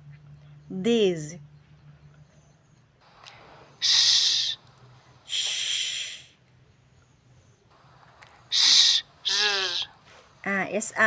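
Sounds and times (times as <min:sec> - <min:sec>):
person making hissing sound: 0:03.8 - 0:04.6, 0:05.3 - 0:06.4, 0:08.5 - 0:09.9.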